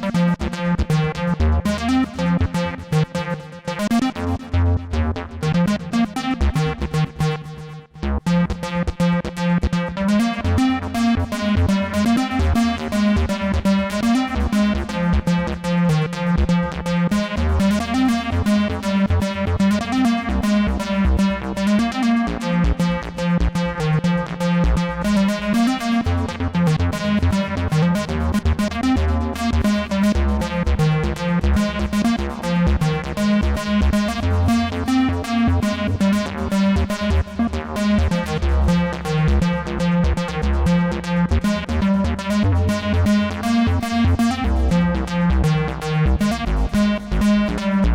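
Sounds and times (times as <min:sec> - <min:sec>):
pulsing synth bass line: 0:22.2 - 0:47.9.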